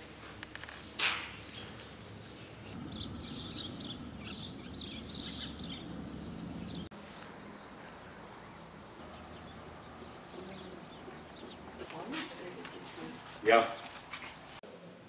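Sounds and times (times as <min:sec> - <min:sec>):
faint outdoor hiss: 0:00.0 - 0:15.0
birds chirping: 0:00.5 - 0:14.6
low background rumble: 0:02.6 - 0:06.9.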